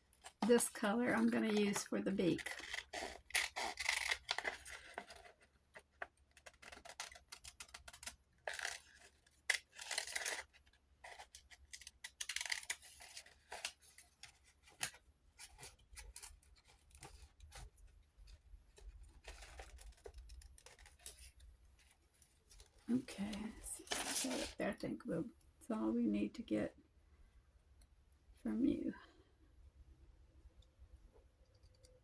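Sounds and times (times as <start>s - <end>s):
paper rustling: 0.1s - 24.6s
scissors cutting paper: 0.4s - 17.7s.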